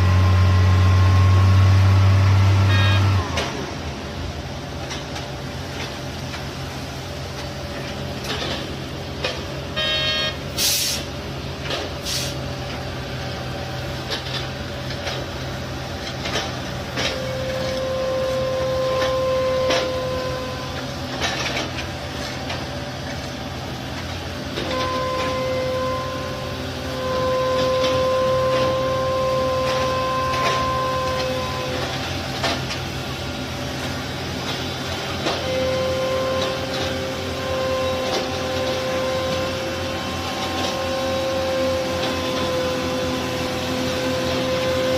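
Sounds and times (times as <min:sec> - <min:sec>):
construction machinery engine drone: 0:00.0 - 0:44.9
short beep: 0:02.7 - 0:03.2, 0:09.8 - 0:10.4
knocks and clanks: 0:16.0 - 0:17.8, 0:20.8 - 0:23.3.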